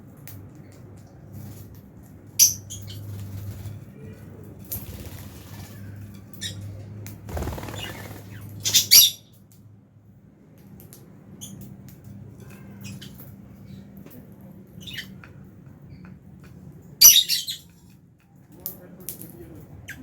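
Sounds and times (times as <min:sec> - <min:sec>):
wings flapping: 0:02.9 - 0:04.0, 0:04.6 - 0:06.4, 0:07.2 - 0:08.8
birds chirping and squawking: 0:04.8 - 0:09.3, 0:17.0 - 0:17.7.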